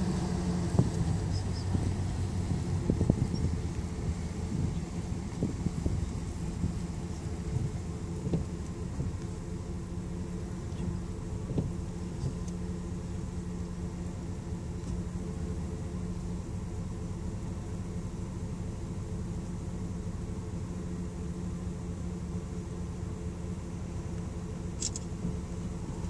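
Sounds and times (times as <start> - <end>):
faint engine knocks: 0.0 - 16.9
car engine running: 0.0 - 26.0.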